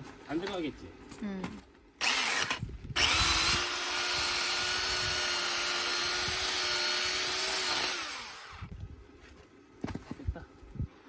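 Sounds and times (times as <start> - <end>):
electric saw cutting wood: 2.0 - 8.7.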